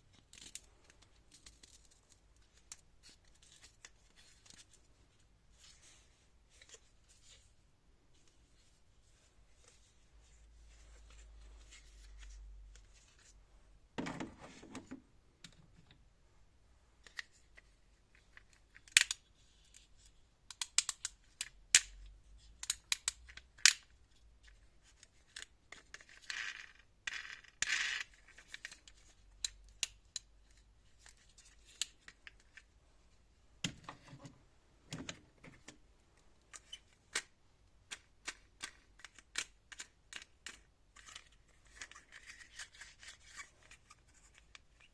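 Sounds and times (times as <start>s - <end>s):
plastic objects clicking: 36.4s - 42.6s.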